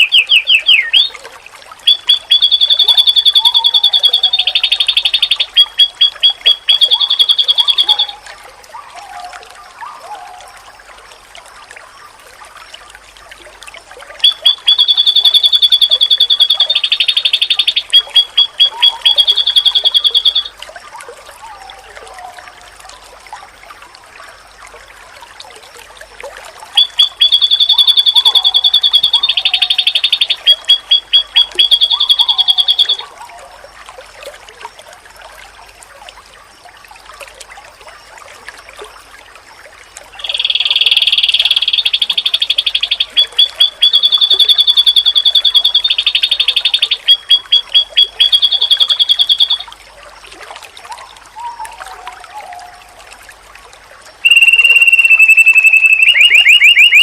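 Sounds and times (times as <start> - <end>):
bird buzzy trilling song: 0.0 - 1.2, 1.8 - 8.2, 14.2 - 20.5, 26.8 - 33.1, 40.2 - 49.7, 54.2 - 57.0
soft low bird chirps: 1.8 - 8.2, 14.2 - 20.5, 26.8 - 33.1, 40.2 - 49.7, 54.2 - 57.0.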